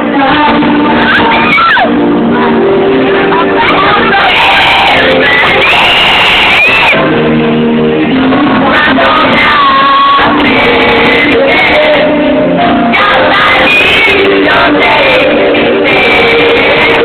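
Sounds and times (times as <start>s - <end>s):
live pop music with singing: 0.0s - 17.0s
fans shouting and screaming: 0.8s - 2.1s, 3.1s - 7.3s.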